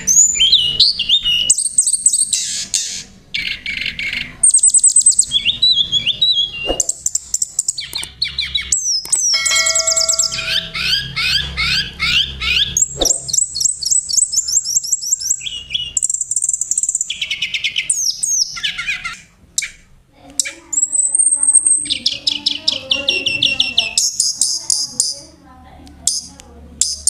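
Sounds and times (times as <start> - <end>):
songbirds chirping and trilling: 0.0 - 27.0
high bird whistle: 4.6 - 7.0, 8.8 - 11.4.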